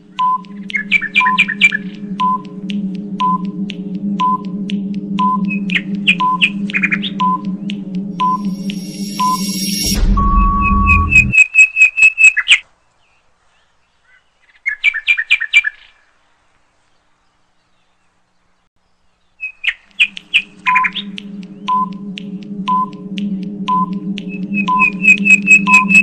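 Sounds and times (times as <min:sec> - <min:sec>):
bird chirping: 0:00.0 - 0:02.5, 0:18.8 - 0:23.0
background music: 0:00.0 - 0:11.3, 0:19.9 - 0:26.0
countdown timer beeping: 0:00.0 - 0:11.3, 0:20.0 - 0:26.0.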